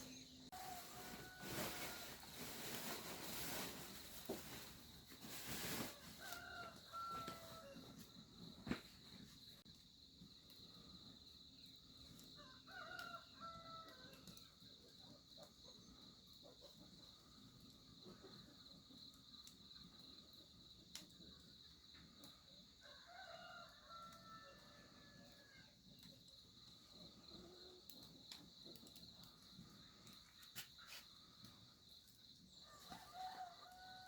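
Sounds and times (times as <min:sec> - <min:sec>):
rooster crowing faintly: 0:00.0 - 0:03.0, 0:05.8 - 0:08.1, 0:32.5 - 0:34.0.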